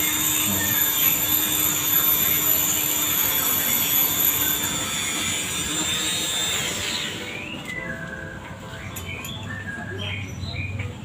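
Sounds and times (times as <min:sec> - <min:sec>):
motorised tool whining: 0:00.0 - 0:08.2.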